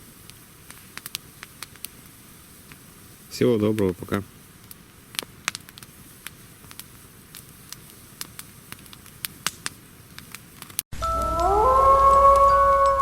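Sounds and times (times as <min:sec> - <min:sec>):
campfire crackling and popping: 0:00.0 - 0:10.8
music with gliding tones: 0:11.0 - 0:13.0.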